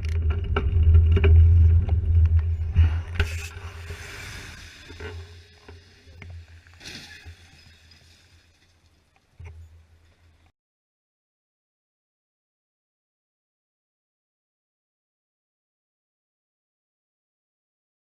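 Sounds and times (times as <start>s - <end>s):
car rumbling: 0.0s - 6.6s.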